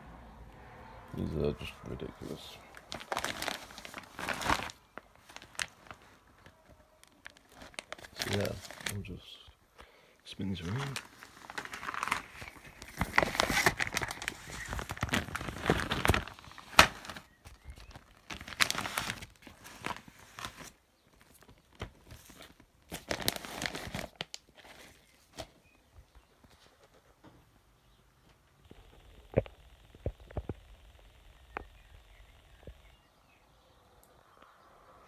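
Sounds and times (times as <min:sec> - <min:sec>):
packaging crinkling: 0:02.6 - 0:09.1, 0:10.6 - 0:25.6.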